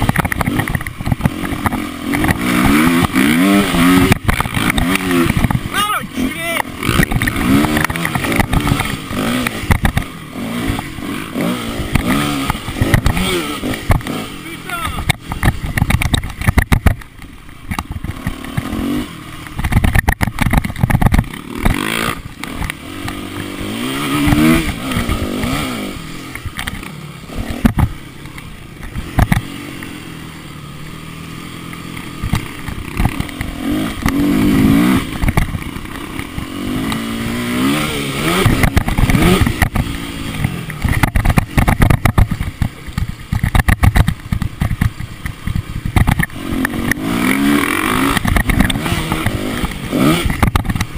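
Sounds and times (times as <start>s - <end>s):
loud sharp knocks and clatter: 0.0s - 3.4s, 4.0s - 5.7s, 6.8s - 10.1s, 15.0s - 17.1s, 19.5s - 23.2s, 38.3s - 50.9s
motocross bike engine revving: 0.0s - 50.9s.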